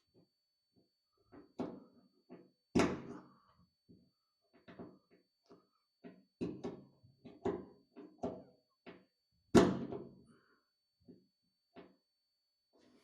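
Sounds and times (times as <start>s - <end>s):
knocks and taps on sheet metal: 6.0s - 10.1s.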